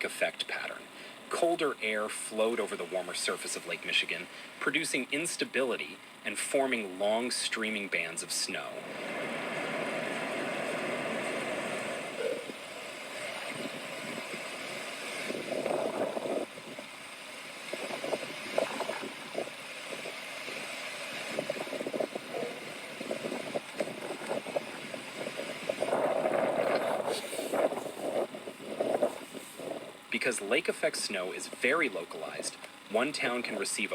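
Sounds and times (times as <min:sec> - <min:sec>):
motor vehicle rumbling: 0:08.5 - 0:30.2.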